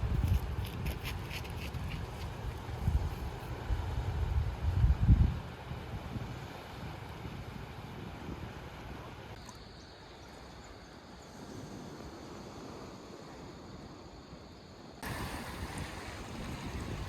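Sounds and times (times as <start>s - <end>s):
wind on microphone: 0.0s - 9.1s, 15.0s - 17.0s
sea wash: 15.0s - 17.0s.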